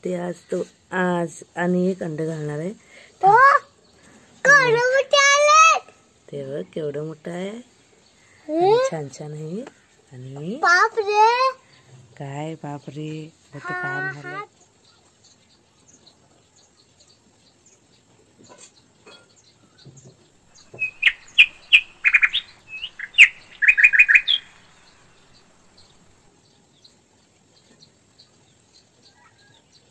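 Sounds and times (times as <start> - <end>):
small birds chirping: 6.1 - 29.9.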